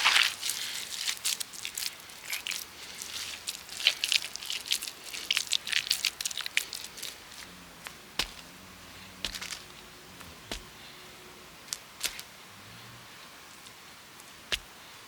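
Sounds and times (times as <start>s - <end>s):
crunching and crackling snaps: 0.0s - 8.5s, 9.2s - 10.7s.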